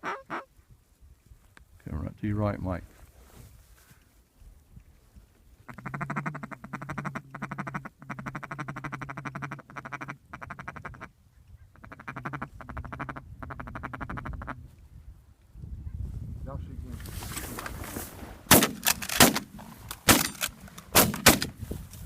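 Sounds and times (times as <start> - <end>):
duck call buzzy chatter: 5.7 - 14.6.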